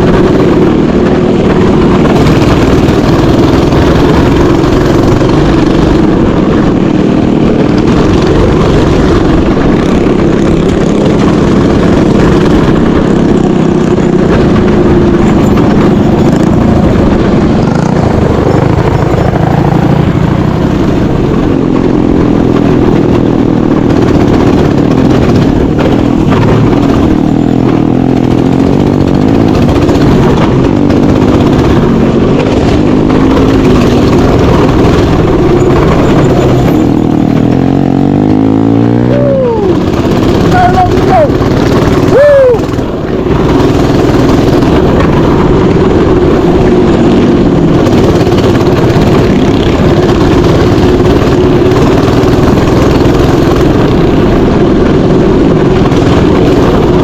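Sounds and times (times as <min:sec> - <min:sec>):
small bike engine revving: 0:00.0 - 0:57.0.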